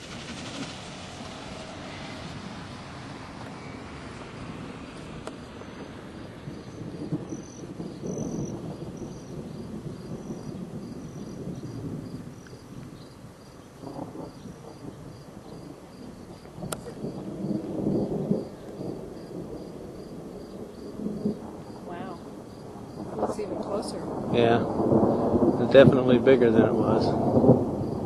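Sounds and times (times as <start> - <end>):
distant thunder rumbling: 0.0 - 28.0.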